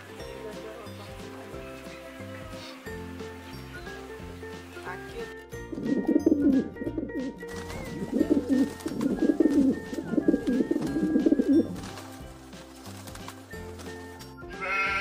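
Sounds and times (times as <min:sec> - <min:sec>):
soft background music: 0:00.0 - 0:15.0
pigeons cooing: 0:05.6 - 0:14.1.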